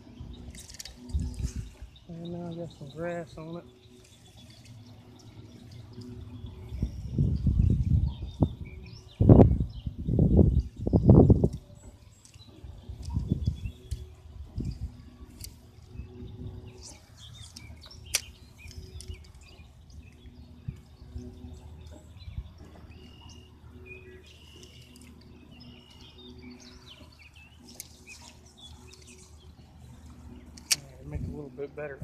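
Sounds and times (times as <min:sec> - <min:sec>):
songbirds chirping: 0:00.0 - 0:32.0
sharp click: 0:17.6 - 0:19.1, 0:30.6 - 0:31.0.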